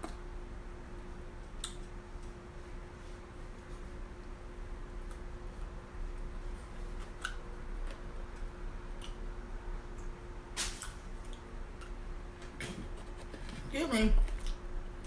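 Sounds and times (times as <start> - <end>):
wet chewing and mouth noises: 1.5 - 2.0, 5.0 - 5.7, 6.9 - 9.3, 14.2 - 14.6
soft mouth clicks: 1.6 - 1.8.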